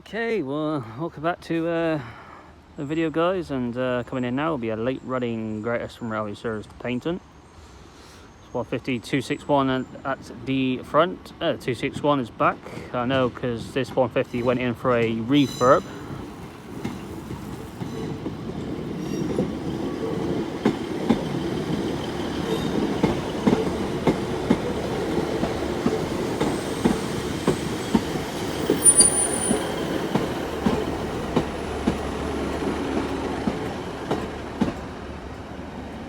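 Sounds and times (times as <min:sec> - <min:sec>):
diesel train engines rumbling: 0:00.8 - 0:36.0
train wheels knocking over rail joints: 0:16.1 - 0:35.0
high squeal: 0:26.5 - 0:30.0.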